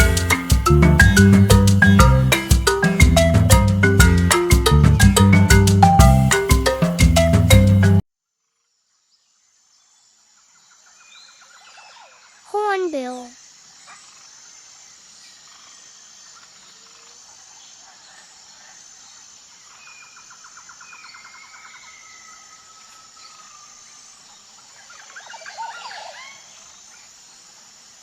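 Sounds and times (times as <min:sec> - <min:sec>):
birds chattering: 0:00.0 - 0:03.6
insects buzzing in pulses: 0:12.5 - 0:17.5.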